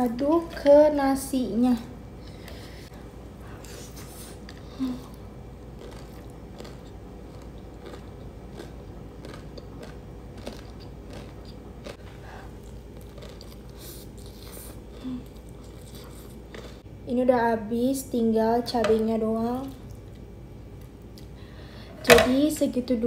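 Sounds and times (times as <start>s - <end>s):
crunchy chewing: 3.6s - 16.9s.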